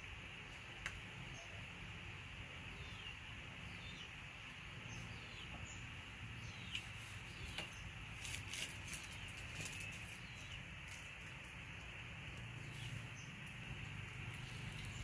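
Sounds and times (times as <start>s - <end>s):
small birds chirping: 0.0s - 15.0s
steady background hum: 0.0s - 15.0s.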